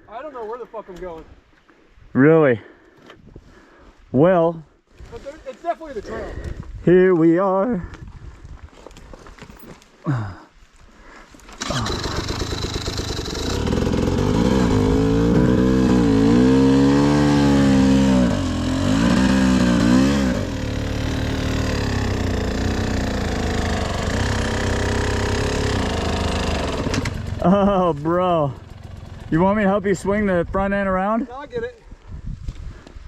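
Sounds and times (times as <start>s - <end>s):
dirt bike engine revving: 11.6s - 30.3s.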